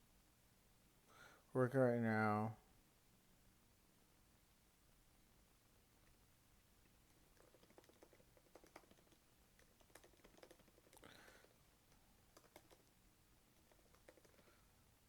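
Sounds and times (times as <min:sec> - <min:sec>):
typing on computer keyboard: 0:07.1 - 0:12.9, 0:13.6 - 0:14.6.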